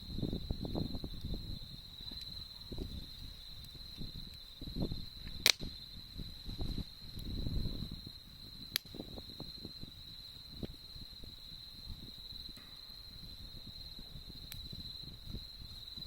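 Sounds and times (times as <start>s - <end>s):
campfire crackling: 0.0s - 16.0s
fire popping sharply: 5.0s - 9.7s.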